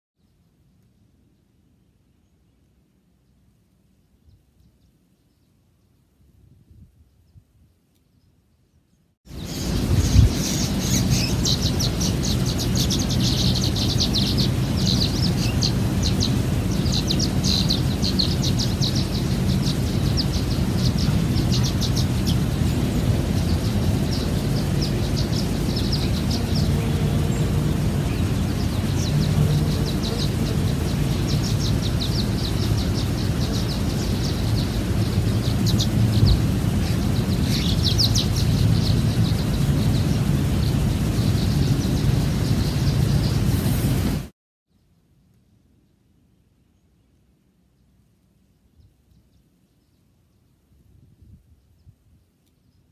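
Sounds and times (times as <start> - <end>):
birds chirping and trilling: 8.2 - 44.0
steady low rumble: 9.3 - 44.3.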